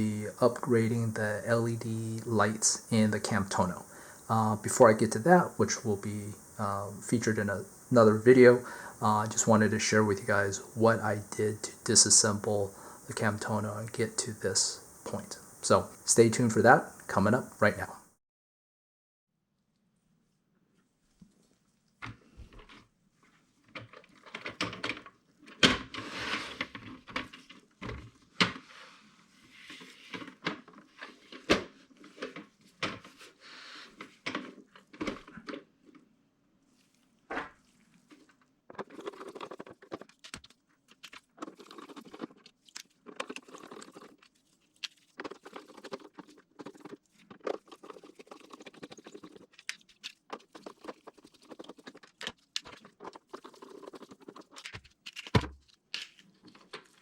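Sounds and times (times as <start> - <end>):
plastic parts clicking and scraping: 22.0 - 36.2, 37.4 - 57.0.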